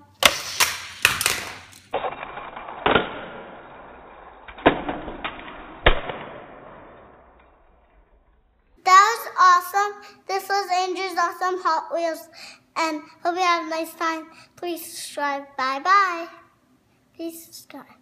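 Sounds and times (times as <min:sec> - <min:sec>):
toy launcher plastic snaps: 0:00.2 - 0:02.0.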